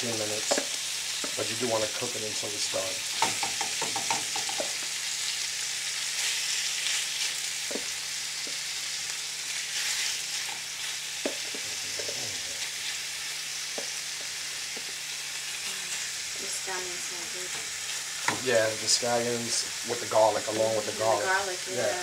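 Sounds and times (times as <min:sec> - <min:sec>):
chicken sizzling in a frying pan: 0:00.0 - 0:22.0
utensil knocking against pan: 0:00.4 - 0:01.4, 0:03.2 - 0:04.8.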